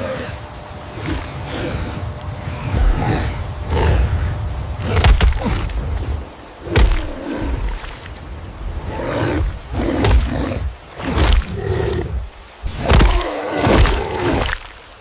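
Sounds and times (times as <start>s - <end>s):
big cat roars and snarls: 0.0s - 14.6s.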